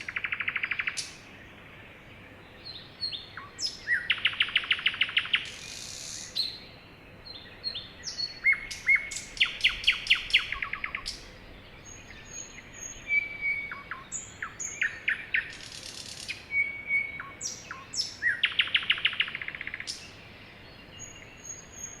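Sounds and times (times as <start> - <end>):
songbird trill: 0.0 - 22.0
bird whistles and chirps: 12.2 - 20.0.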